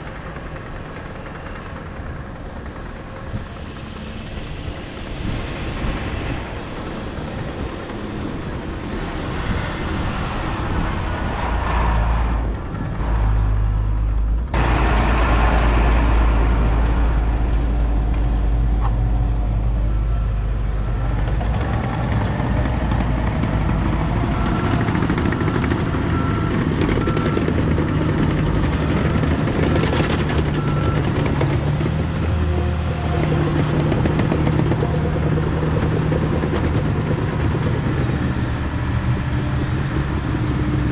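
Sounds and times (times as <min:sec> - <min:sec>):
diesel truck engine running: 0:12.4 - 0:40.9.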